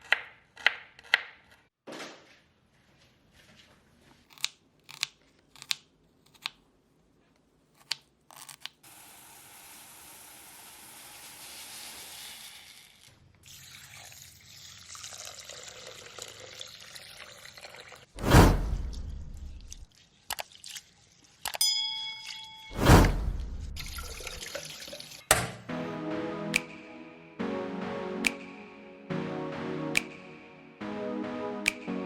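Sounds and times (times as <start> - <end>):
water running from a tap: 23.8 - 25.3
sharp knocks and clicks: 25.3 - 25.7.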